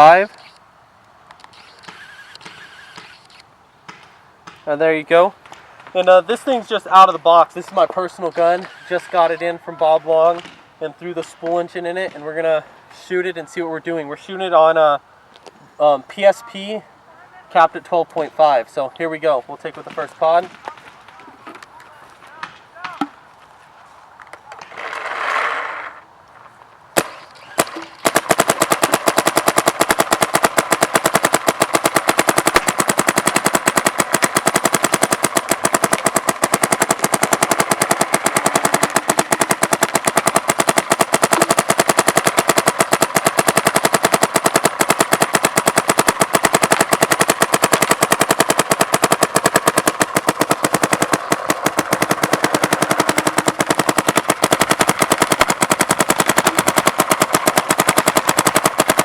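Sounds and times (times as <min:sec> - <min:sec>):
paintball marker firing: 0:01.4 - 0:04.8, 0:10.3 - 0:10.6, 0:22.3 - 0:23.2, 0:27.0 - 0:59.0.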